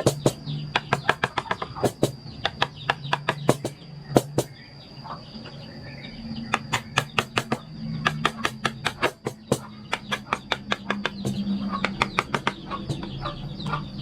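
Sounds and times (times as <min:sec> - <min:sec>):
mallet tapping chisel into wood: 0:00.0 - 0:04.5, 0:06.6 - 0:13.2.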